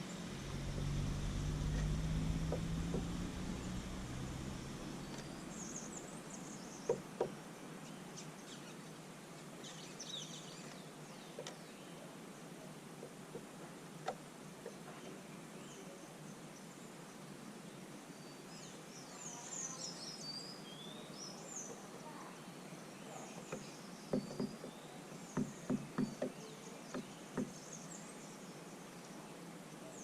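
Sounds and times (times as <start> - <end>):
small birds chirping: 0.0 - 30.0
sharp knocks: 1.7 - 3.4, 23.5 - 24.7, 25.4 - 26.4.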